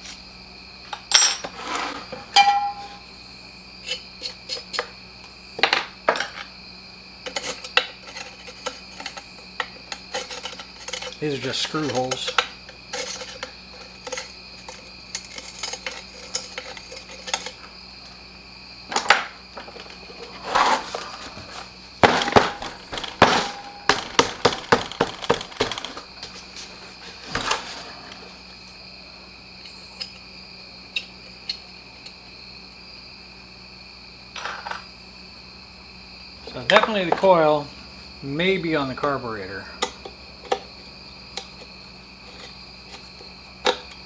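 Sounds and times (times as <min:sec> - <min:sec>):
cricket chirring: 0:00.0 - 0:44.0
metal parts clinking: 0:01.1 - 0:01.6, 0:10.1 - 0:17.6
sharp knocks: 0:22.0 - 0:26.1.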